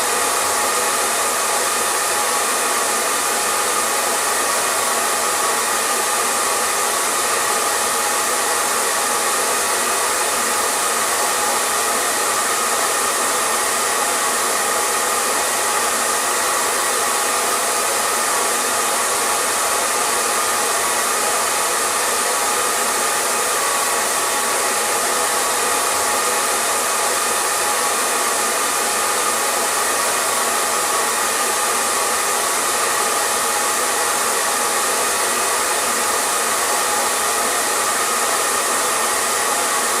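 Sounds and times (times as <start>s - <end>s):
hair dryer running: 0.0s - 40.0s.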